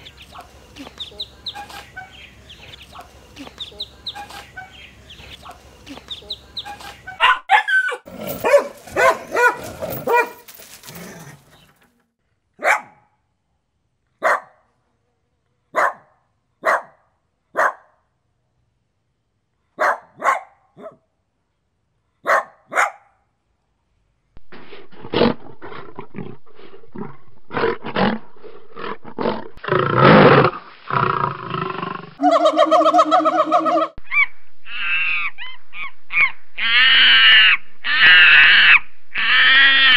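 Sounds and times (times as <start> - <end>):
bird calls: 0.0 - 7.4, 32.2 - 38.4
dog barking: 6.7 - 10.4, 12.6 - 13.2, 14.2 - 14.7, 15.7 - 18.0, 19.8 - 21.1, 22.2 - 23.2
animal calls: 31.1 - 39.9.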